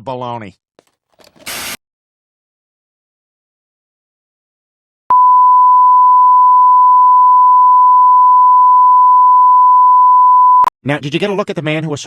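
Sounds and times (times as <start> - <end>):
steady electronic beep: 5.1 - 10.7.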